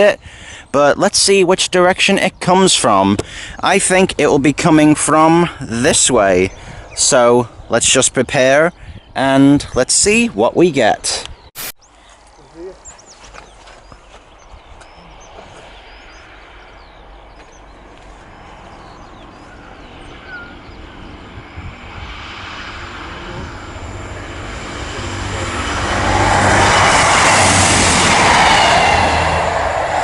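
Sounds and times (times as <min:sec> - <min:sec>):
diesel train passing: 0:15.2 - 0:30.0.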